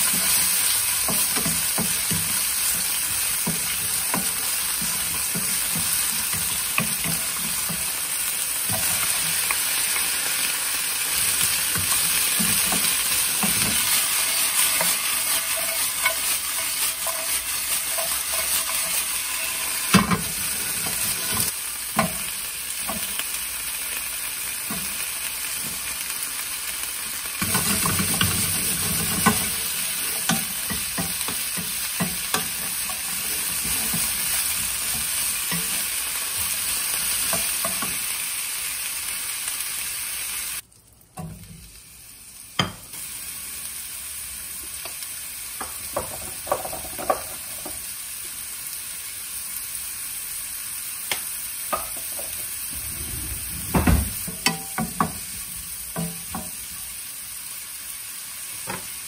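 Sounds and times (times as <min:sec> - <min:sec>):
meat and cabbage sizzling: 0:00.0 - 0:59.0
mushrooms frying in butter: 0:00.0 - 0:59.0
wooden spatula scraping a pan: 0:11.1 - 0:22.2, 0:27.4 - 0:38.0.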